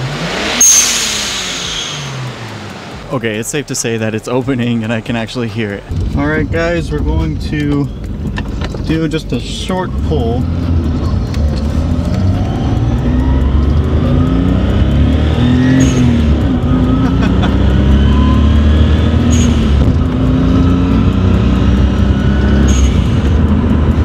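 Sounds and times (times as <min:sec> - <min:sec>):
car engine revving hard: 0:00.0 - 0:07.6, 0:08.9 - 0:24.0
blow-off valve hiss: 0:00.5 - 0:03.1.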